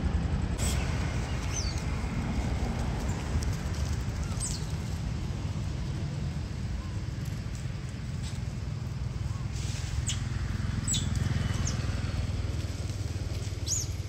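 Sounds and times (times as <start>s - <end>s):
low rumble: 0.0s - 14.0s
monkeys squeaking: 4.1s - 5.0s, 10.0s - 12.0s.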